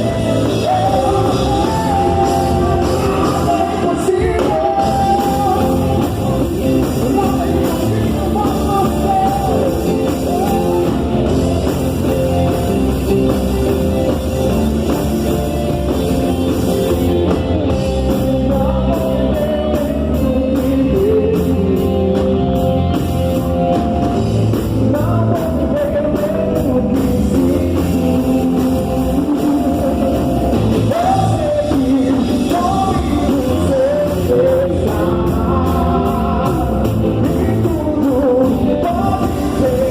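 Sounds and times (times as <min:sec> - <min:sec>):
person singing: 0:00.0 - 0:12.8, 0:17.1 - 0:39.9
rock band playing: 0:00.0 - 0:39.9.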